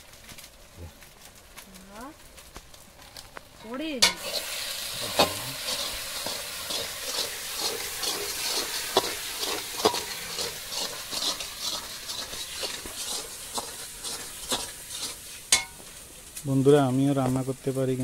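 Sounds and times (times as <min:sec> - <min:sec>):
spices sizzling in oil: 0:00.0 - 0:18.0
metal spatula scraping a pot: 0:04.0 - 0:16.0.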